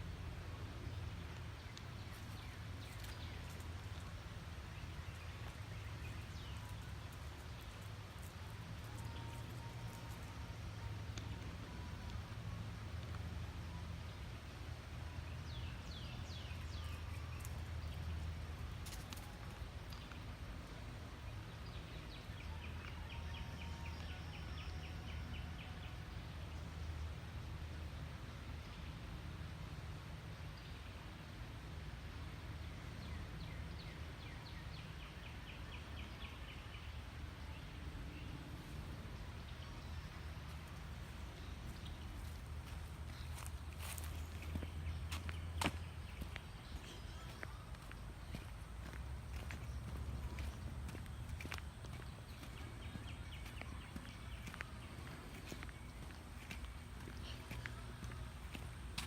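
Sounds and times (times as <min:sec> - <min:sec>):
footsteps on trail: 0:01.6 - 0:04.2, 0:39.8 - 0:59.0
steady low rumble: 0:31.9 - 0:59.0.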